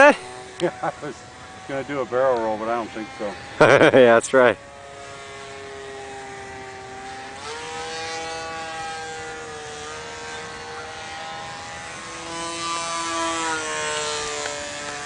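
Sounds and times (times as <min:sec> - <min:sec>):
model plane motor whine: 0:00.0 - 0:15.0.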